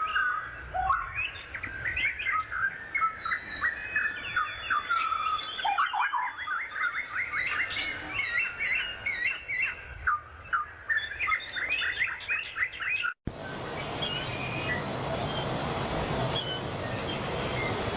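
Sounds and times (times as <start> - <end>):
songbirds chirping and singing: 0.0 - 15.6, 16.2 - 17.9
steady rushing noise: 13.3 - 17.9.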